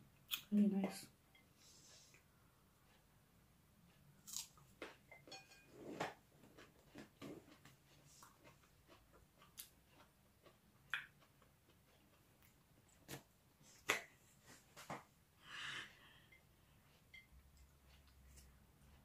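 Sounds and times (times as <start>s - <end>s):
wet mouth clicks eating: 10.9s - 11.4s.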